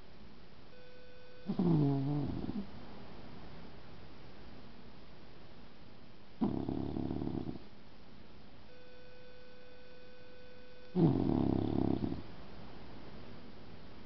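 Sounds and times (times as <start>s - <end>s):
dog snoring: 1.4s - 2.7s, 6.4s - 7.6s, 10.9s - 12.2s.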